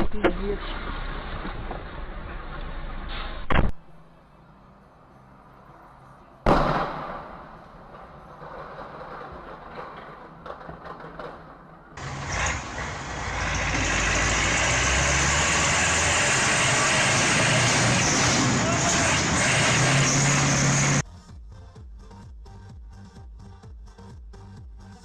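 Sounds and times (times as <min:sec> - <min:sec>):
steady road and engine noise: 0:00.0 - 0:21.1
vehicle road noise: 0:00.0 - 0:21.1
sudden loud bang: 0:06.5 - 0:07.6.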